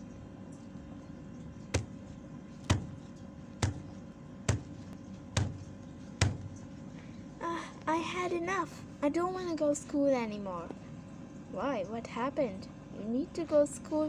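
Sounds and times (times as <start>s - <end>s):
steady low hum: 0.0s - 9.8s
sharp thumps: 1.8s - 6.7s.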